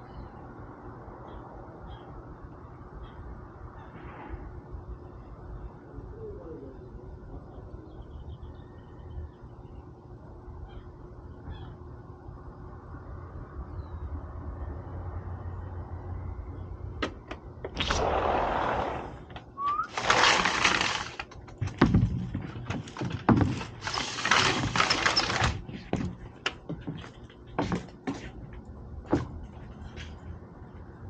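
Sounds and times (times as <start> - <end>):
rustling: 19.0 - 25.9.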